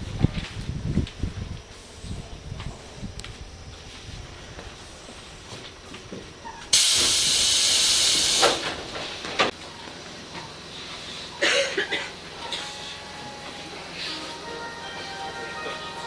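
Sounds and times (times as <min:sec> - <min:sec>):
compressed air hissing: 0:06.7 - 0:09.3.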